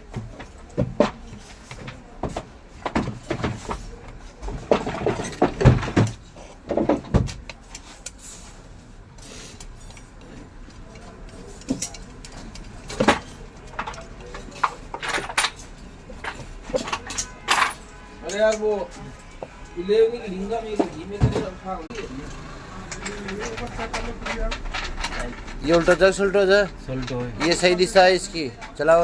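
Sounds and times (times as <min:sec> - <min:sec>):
knocks and clatter of motor parts: 0:00.0 - 0:08.2, 0:09.6 - 0:19.7, 0:20.6 - 0:29.0.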